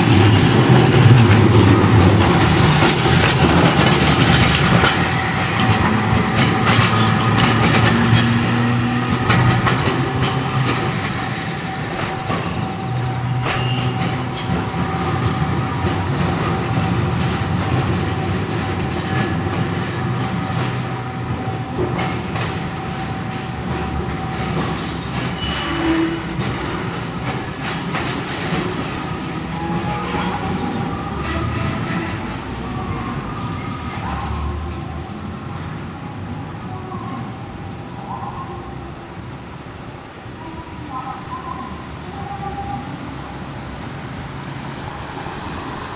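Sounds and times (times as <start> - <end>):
rail clatter: 0.0 - 45.9
tram humming: 0.0 - 45.9
wheel squeal: 3.6 - 15.9, 24.2 - 26.4, 27.8 - 32.2.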